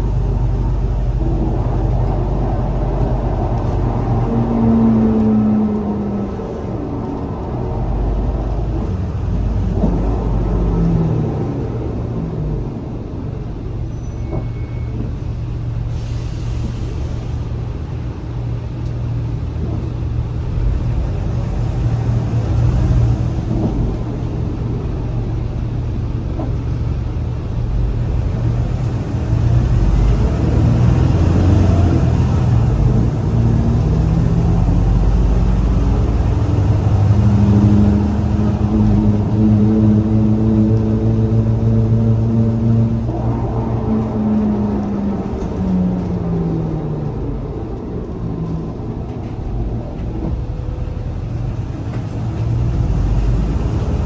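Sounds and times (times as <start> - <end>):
bus engine rumbling: 0.0 - 54.0
air brake hiss: 15.9 - 17.4.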